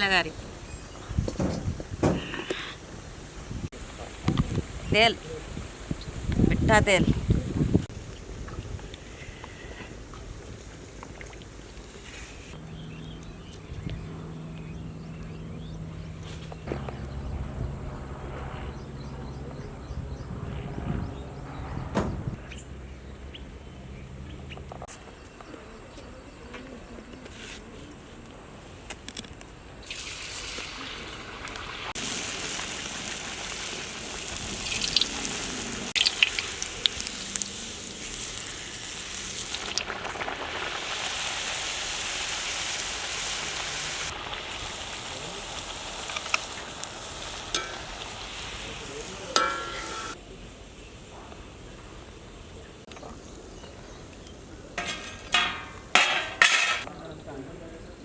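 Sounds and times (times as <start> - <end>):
knocks: 1.3 - 2.4
low hum: 12.6 - 24.8
oil sizzling: 29.8 - 50.2
sharp crackles of frying: 29.8 - 51.8.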